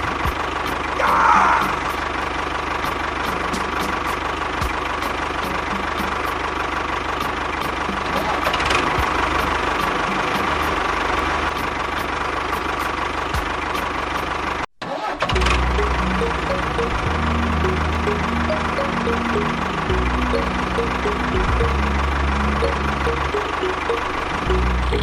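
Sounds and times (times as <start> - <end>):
engine running with knocking rattle: 0.0 - 25.0.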